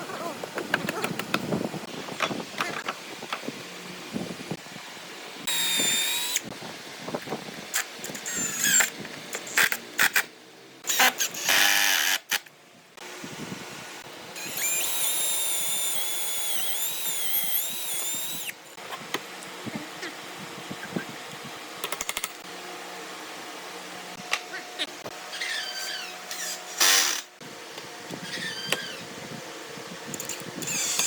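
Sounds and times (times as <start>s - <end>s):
electric power tool whining: 5.5s - 6.5s, 14.4s - 18.6s.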